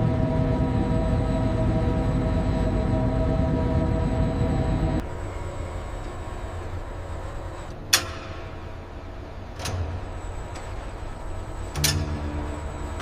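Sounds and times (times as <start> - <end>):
low rumble: 0.0 - 5.1, 10.9 - 13.0
machinery hum: 0.0 - 13.0
metallic clank: 11.7 - 13.0.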